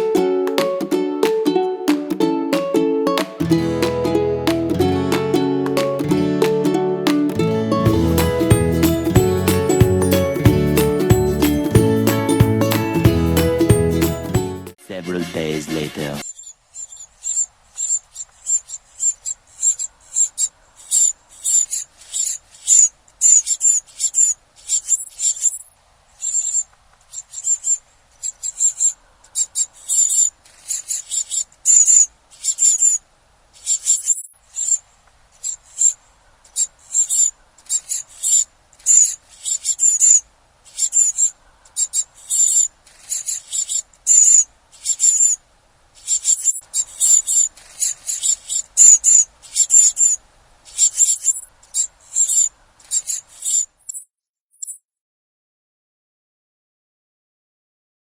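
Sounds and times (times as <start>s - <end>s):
small birds chirping: 16.2s - 45.4s, 46.0s - 54.8s.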